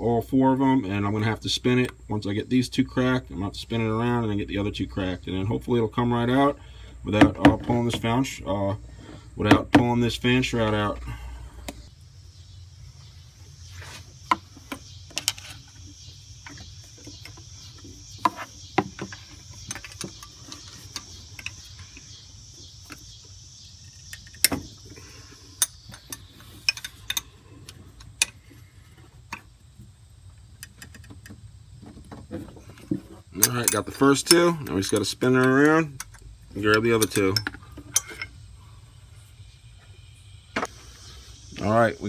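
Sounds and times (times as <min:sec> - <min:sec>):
metallic clicks and clanks of tools: 0:19.0 - 0:22.0, 0:25.6 - 0:28.4, 0:33.3 - 0:38.3.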